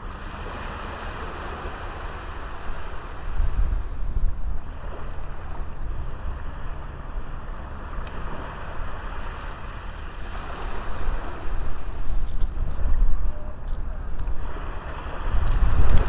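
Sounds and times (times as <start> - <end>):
sea waves washing on a beach: 0.0 - 16.0
wind rumbling on the microphone: 0.0 - 16.0.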